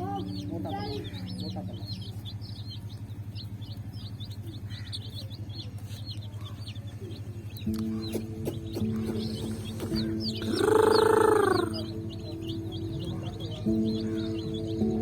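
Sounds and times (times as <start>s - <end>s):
music: 0.0s - 2.8s, 7.6s - 15.0s
chicks peeping: 0.0s - 15.0s.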